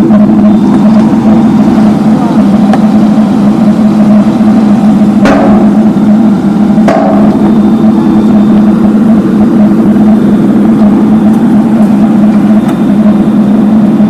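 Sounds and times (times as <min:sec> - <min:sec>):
road-works machinery pulsing drone: 0:00.0 - 0:14.0
sharp knocks: 0:05.2 - 0:05.8, 0:06.9 - 0:07.4.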